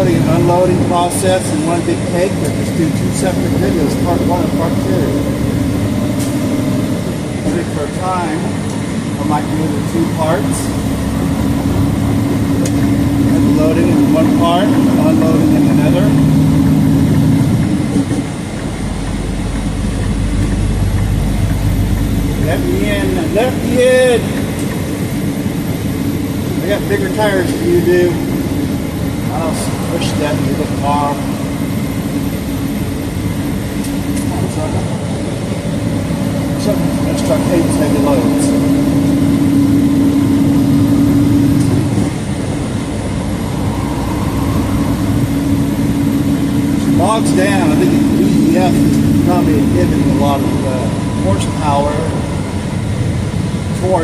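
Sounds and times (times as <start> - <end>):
truck diesel engine: 0.0 - 54.0.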